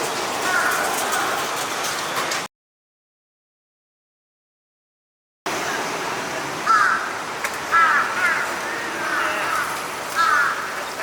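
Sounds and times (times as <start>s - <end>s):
steady background noise: 0.0s - 2.5s, 5.5s - 11.0s
crows cawing: 0.4s - 1.4s, 6.7s - 11.0s.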